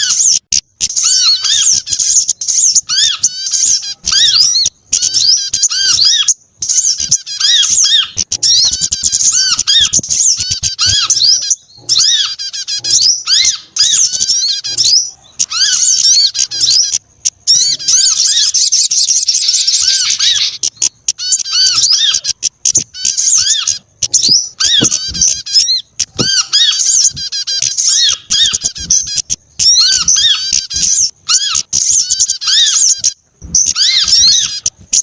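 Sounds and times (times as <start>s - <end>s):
songbirds chirping and twittering: 0.0s - 35.0s.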